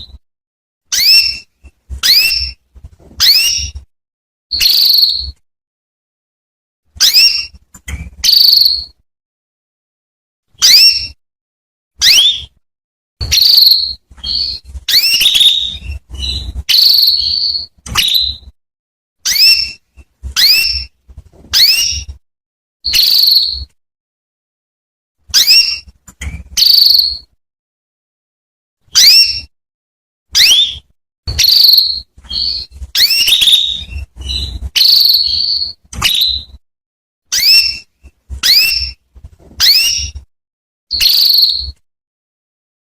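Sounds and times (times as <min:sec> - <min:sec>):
canary calling: 0:00.9 - 0:02.6, 0:03.2 - 0:03.8, 0:04.5 - 0:05.4, 0:07.0 - 0:09.0, 0:10.6 - 0:11.2, 0:12.0 - 0:12.6, 0:13.2 - 0:18.5, 0:19.2 - 0:20.9, 0:21.5 - 0:22.1, 0:22.9 - 0:23.7, 0:25.3 - 0:27.3, 0:28.9 - 0:29.5, 0:30.4 - 0:36.6, 0:37.3 - 0:39.0, 0:39.6 - 0:40.2, 0:40.9 - 0:41.8.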